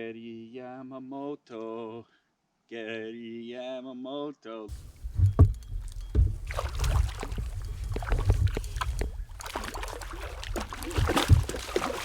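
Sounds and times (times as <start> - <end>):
gear knocking against hull: 4.7 - 12.0
water sloshing and dripping: 4.7 - 12.0.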